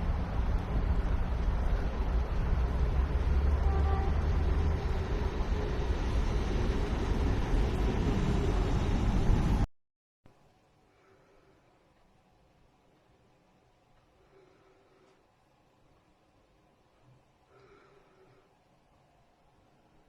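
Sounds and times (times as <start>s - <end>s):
storm wind buffeting microphone: 0.0s - 9.7s.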